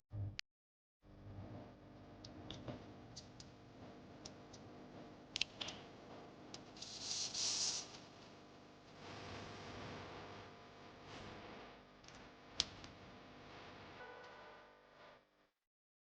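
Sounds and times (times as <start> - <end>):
short hissing scrape: 6.8 - 8.0.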